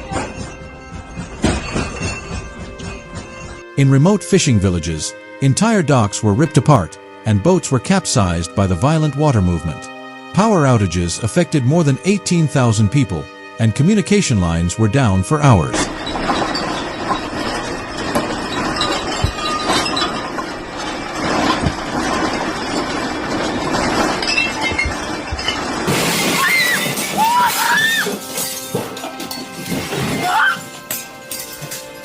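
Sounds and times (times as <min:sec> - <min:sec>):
glass and objects clattering: 0:00.0 - 0:03.6, 0:15.7 - 0:32.0
background music: 0:00.0 - 0:32.0.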